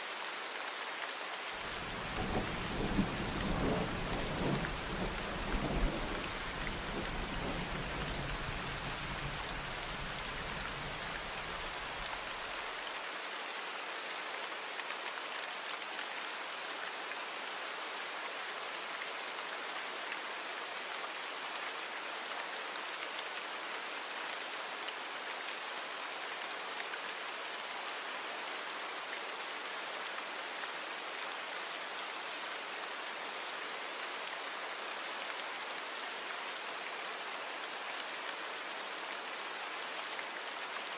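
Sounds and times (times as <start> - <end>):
steady rain: 0.0 - 40.9
low rumble of thunder: 1.9 - 11.9.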